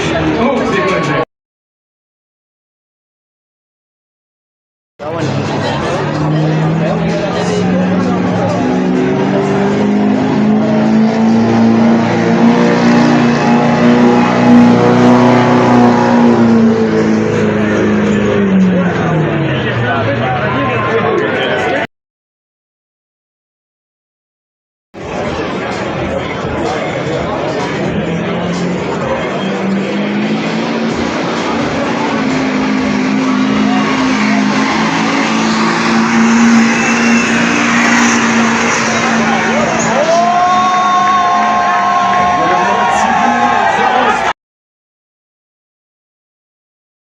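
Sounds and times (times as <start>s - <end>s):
truck engine at high revs: 5.0s - 21.9s, 25.0s - 44.3s
wide rushing noise: 25.0s - 44.3s.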